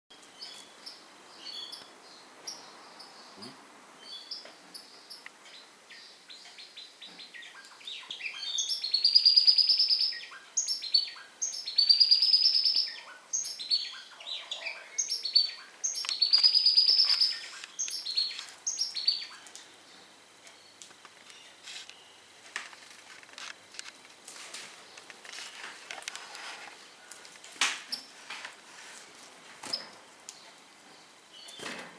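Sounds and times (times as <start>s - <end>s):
pet birds chirping: 0.3s - 21.5s.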